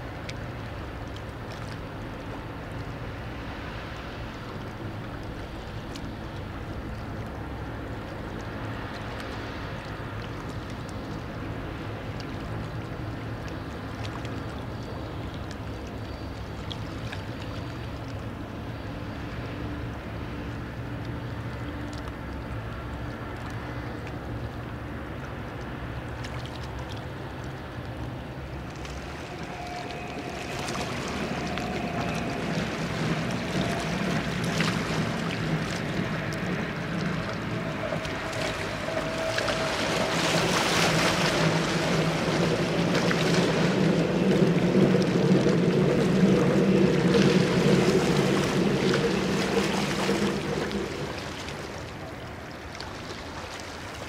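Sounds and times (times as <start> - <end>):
train rumble: 17.7 - 54.0.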